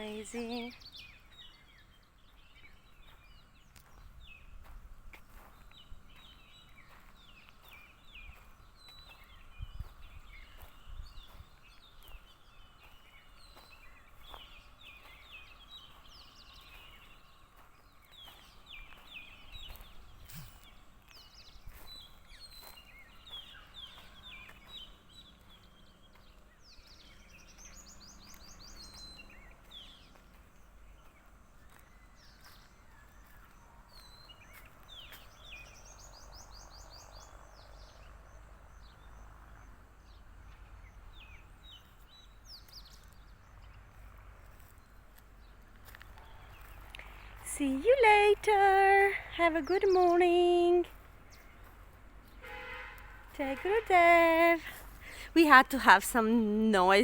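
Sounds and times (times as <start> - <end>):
birds chirping and calling: 46.6 - 52.4.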